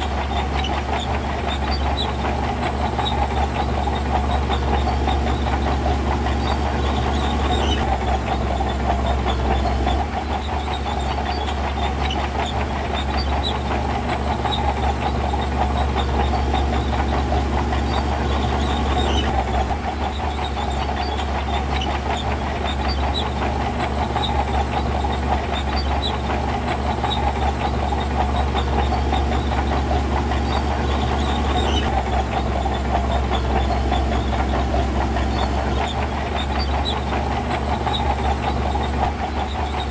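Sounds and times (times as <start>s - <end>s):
diesel machinery engine drone: 0.0s - 39.9s.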